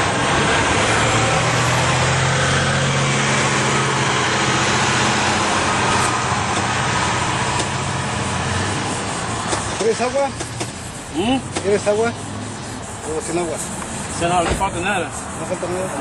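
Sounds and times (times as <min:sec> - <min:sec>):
vehicle engine humming: 0:00.0 - 0:16.0
constant hiss: 0:05.3 - 0:16.0.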